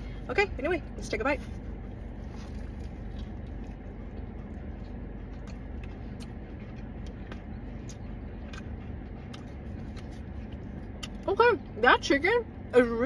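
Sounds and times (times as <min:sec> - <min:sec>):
low car cabin hum: 0:00.0 - 0:13.0
crunchy chewing: 0:01.4 - 0:11.3.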